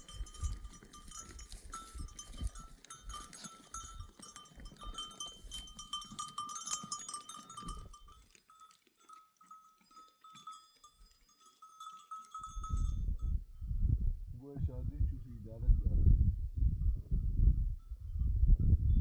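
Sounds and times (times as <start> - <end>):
animals trampling and rustling: 0.0 - 12.4
livestock bells clinking: 0.0 - 13.4.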